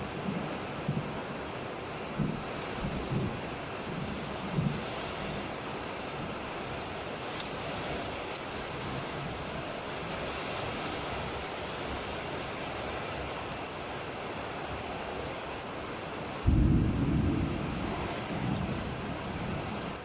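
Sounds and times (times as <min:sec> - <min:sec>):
heavy rain hissing: 0:00.0 - 0:20.0.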